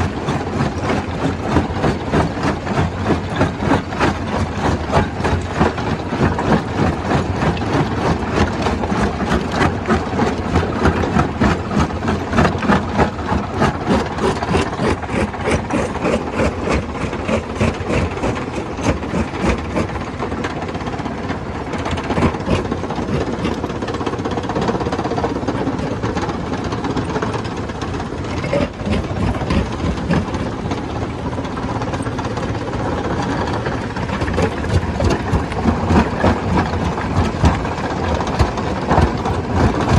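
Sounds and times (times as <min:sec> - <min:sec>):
rhythmic knocking of rock breaking: 0:00.0 - 0:20.8, 0:33.0 - 0:39.9
stone crusher rumbling: 0:00.0 - 0:39.9.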